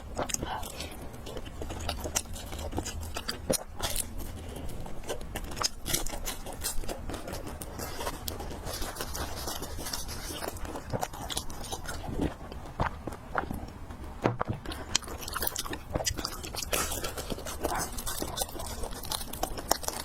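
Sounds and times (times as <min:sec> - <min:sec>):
person chewing: 0:00.0 - 0:20.0
steady low hum: 0:00.0 - 0:20.0.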